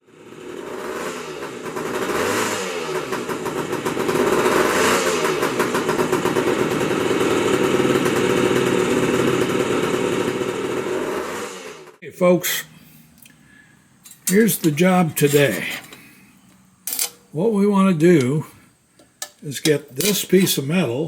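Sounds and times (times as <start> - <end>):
motorcycle engine revving: 0.1 - 12.0.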